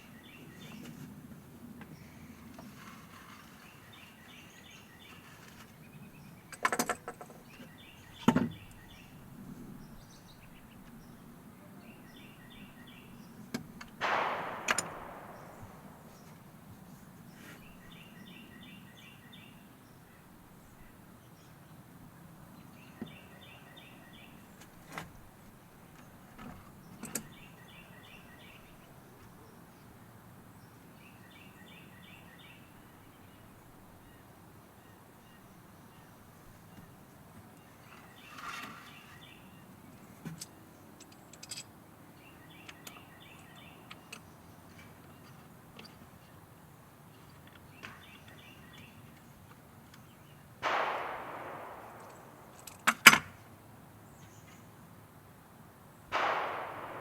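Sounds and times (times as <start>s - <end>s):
bird chirping: 14.0s - 16.4s, 50.0s - 53.0s.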